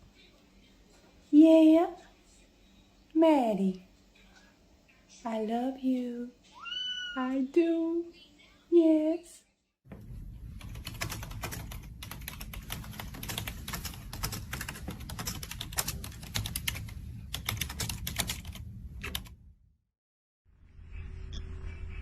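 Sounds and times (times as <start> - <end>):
rapid irregular clicking: 10.5 - 19.3.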